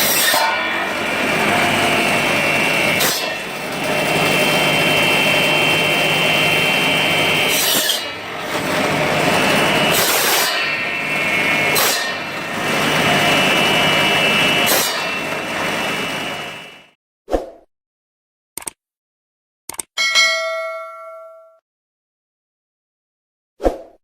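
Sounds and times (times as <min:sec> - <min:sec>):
electric saw cutting bone: 0:00.0 - 0:17.0.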